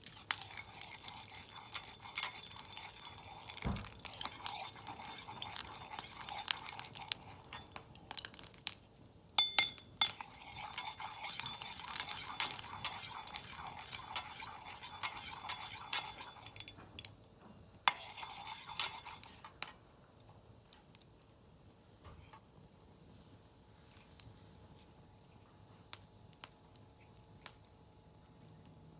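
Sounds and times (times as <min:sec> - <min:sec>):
metal scraping in a wok: 0:00.0 - 0:08.8, 0:09.4 - 0:17.1, 0:17.9 - 0:19.8.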